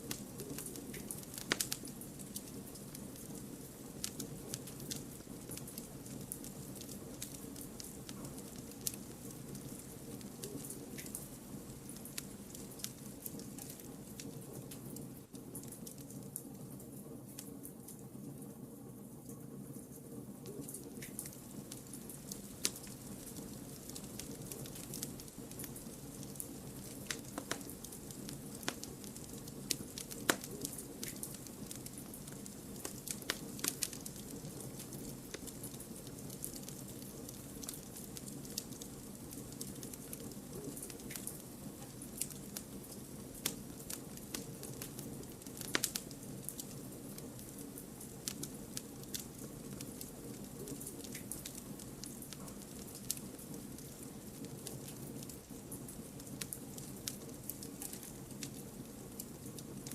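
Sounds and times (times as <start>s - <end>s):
wood crackling and popping: 0.0s - 18.5s, 19.2s - 59.9s
campfire low rumble: 0.0s - 59.9s.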